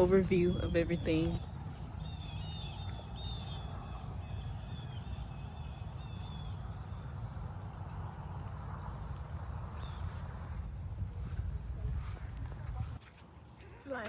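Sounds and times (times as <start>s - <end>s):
songbirds chirping: 0.0s - 8.1s.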